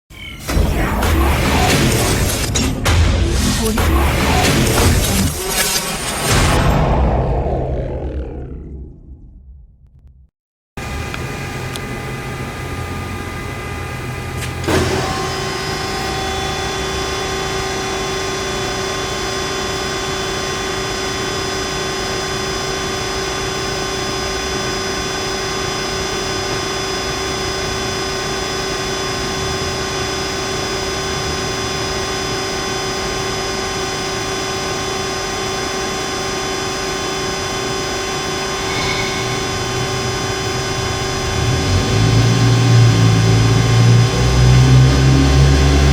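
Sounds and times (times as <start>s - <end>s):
sharp machine clunk: 0.4s - 7.2s, 14.4s - 15.6s
band saw humming and whining: 10.8s - 45.9s.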